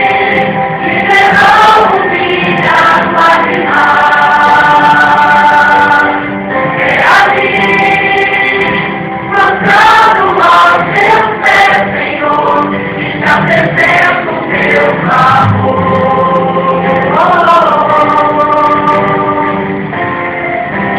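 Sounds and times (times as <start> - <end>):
choir singing in harmony: 0.0 - 20.9.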